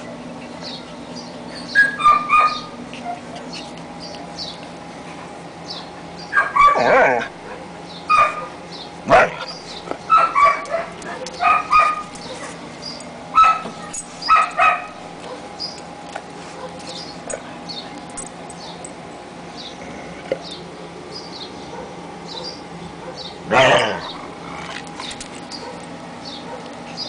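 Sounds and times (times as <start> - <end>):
puppies whimpering: 0.0 - 3.9
puppies yipping and barking: 0.0 - 4.8, 5.8 - 19.8.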